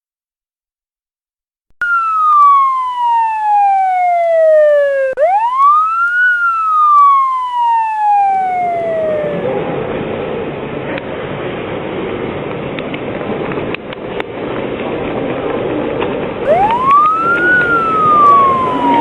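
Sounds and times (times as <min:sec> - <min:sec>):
police car siren wailing: 0:01.8 - 0:10.2, 0:16.4 - 0:19.0
rushing noise: 0:07.2 - 0:19.0.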